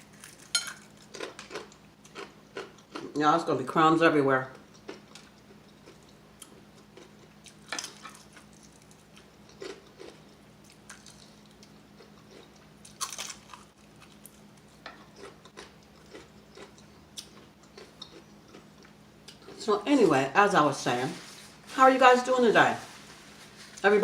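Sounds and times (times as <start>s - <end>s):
crunchy chewing: 0.0s - 3.2s, 4.5s - 19.6s.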